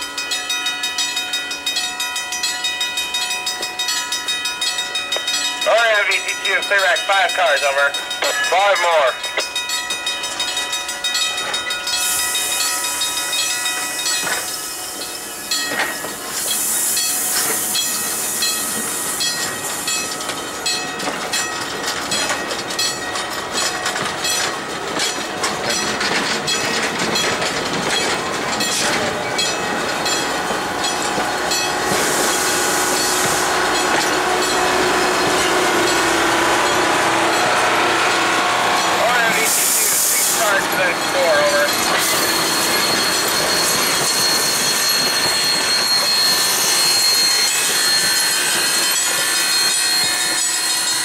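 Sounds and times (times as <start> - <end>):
train wheels clicking over rail joints: 9.2 - 51.0
wheels squealing: 13.6 - 51.0
loud hiss bursts: 31.9 - 33.6, 39.0 - 41.0.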